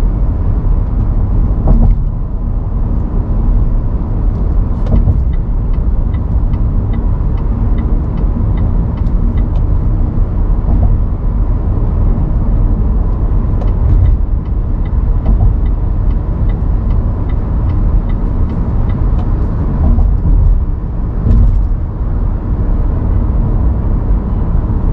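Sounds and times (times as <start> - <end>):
car engine and road rumble: 0.0 - 24.9
faint regular ticking: 13.6 - 19.4.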